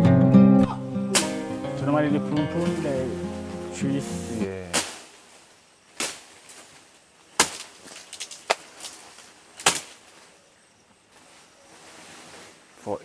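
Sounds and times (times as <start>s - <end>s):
machete chopping leaves: 1.1s - 1.9s, 2.6s - 10.2s.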